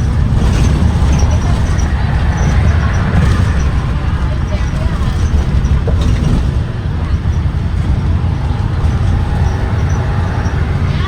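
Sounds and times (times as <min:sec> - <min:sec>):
bus engine running: 0:00.0 - 0:11.0
road rumble: 0:00.0 - 0:11.0.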